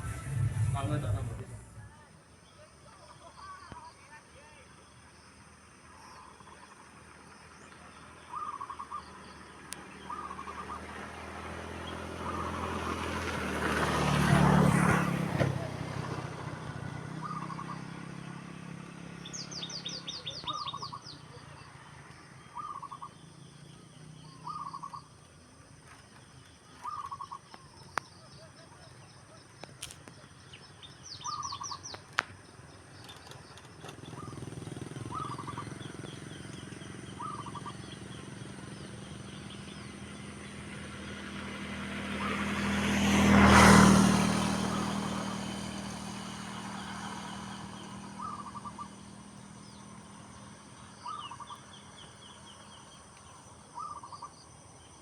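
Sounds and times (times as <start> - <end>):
vehicle passing: 0.0 - 2.1, 9.1 - 22.0, 33.0 - 53.0
small birds twittering: 2.4 - 12.7, 17.1 - 18.3, 19.0 - 55.0
doves cooing: 33.8 - 38.1.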